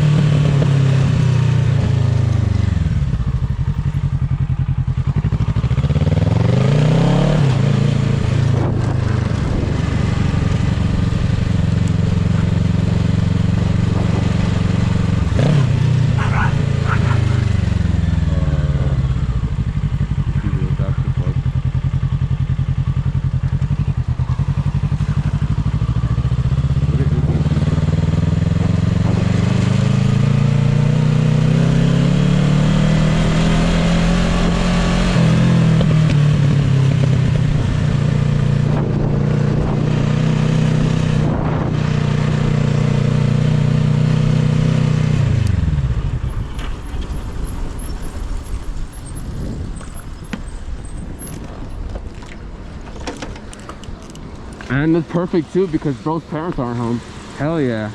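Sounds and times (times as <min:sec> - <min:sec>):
motorcycle engine accelerating: 0:00.0 - 0:57.9
quiet clattering: 0:51.2 - 0:55.2.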